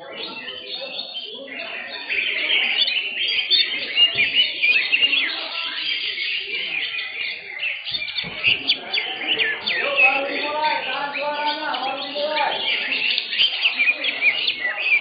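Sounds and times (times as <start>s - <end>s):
birds singing chirps and trills: 0.0s - 15.0s.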